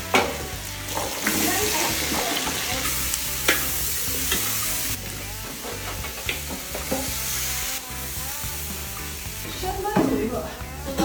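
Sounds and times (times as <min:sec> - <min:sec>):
food sizzling in hot oil: 0:00.0 - 0:11.0
spatula clicking against pan: 0:02.4 - 0:04.6.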